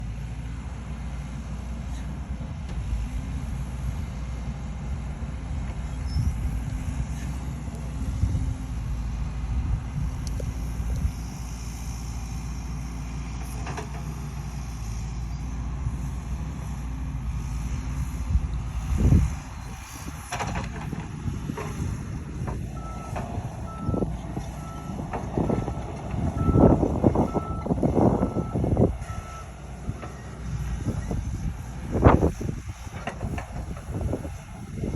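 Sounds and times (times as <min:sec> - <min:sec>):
diesel engine rumbling under load: 0:00.0 - 0:34.9
travel alarm beeping: 0:24.7 - 0:29.5.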